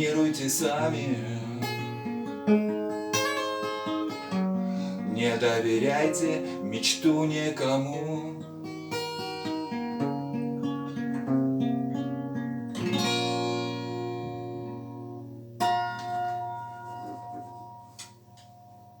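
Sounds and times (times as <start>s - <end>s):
acoustic guitar playing: 0.0s - 19.0s.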